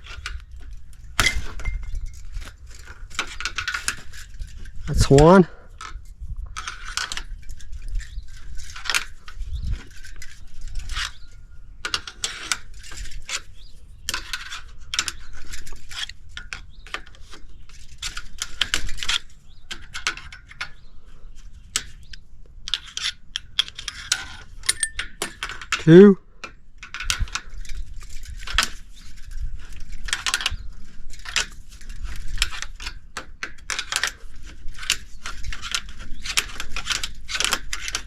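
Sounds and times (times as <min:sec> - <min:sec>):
metal scraping: 0:24.0 - 0:25.6
metallic clicks and knocks: 0:24.6 - 0:25.8.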